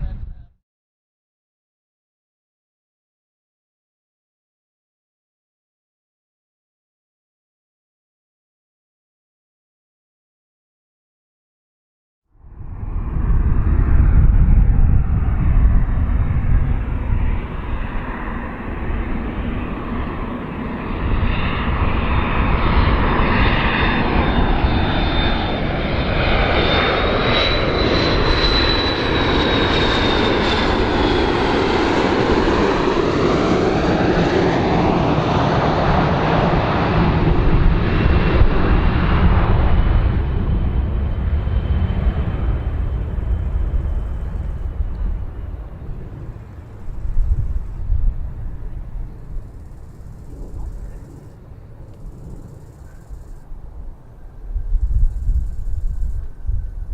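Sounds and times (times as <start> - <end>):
aircraft engines roaring: 12.4 - 56.9
high engine whine: 12.4 - 56.9.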